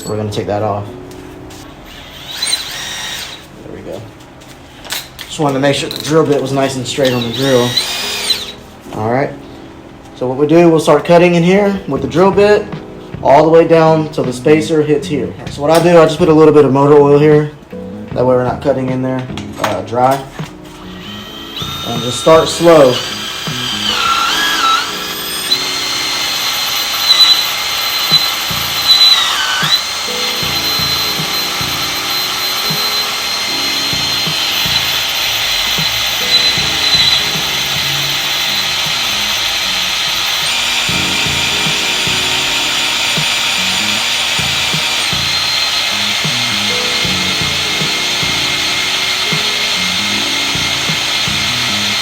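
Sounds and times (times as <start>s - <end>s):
electric drill whining into metal: 0.0s - 0.3s, 1.8s - 3.5s, 4.8s - 8.6s, 20.8s - 52.0s.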